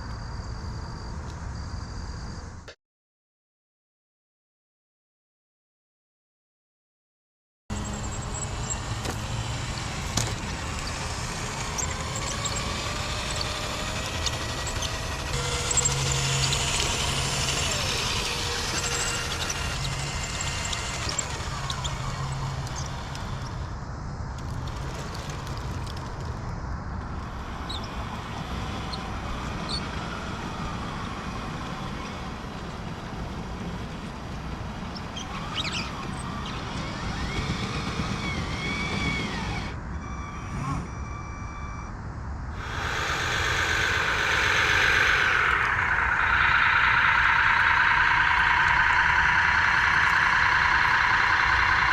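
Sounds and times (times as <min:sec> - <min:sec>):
simulated diesel engine revving: 0:07.7 - 0:23.7, 0:42.6 - 0:51.9.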